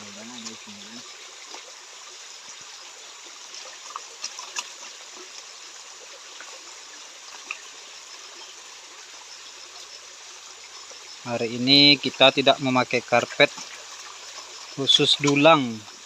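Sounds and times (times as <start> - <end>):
stream water flowing: 0.0 - 16.0
short clicks and splashes: 13.2 - 15.5.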